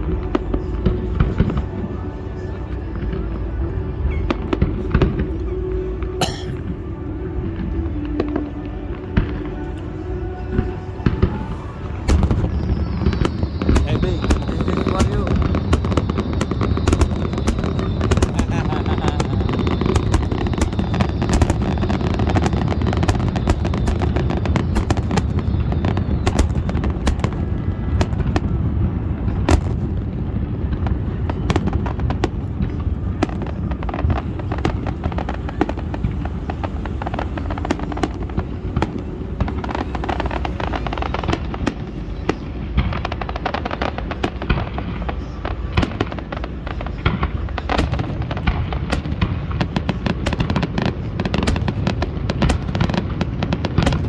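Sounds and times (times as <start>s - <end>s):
fireworks bursting: 9.2s - 54.0s
fireworks popping and crackling: 11.0s - 54.0s.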